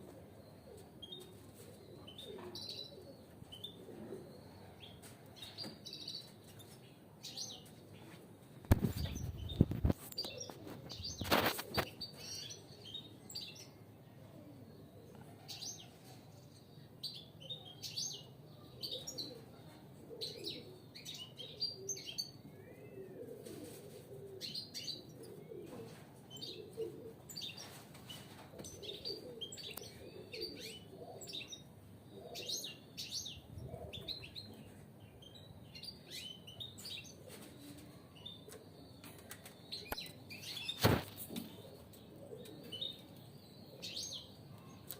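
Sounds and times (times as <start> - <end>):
wing flutters: 8.7 - 11.9, 40.8 - 41.5.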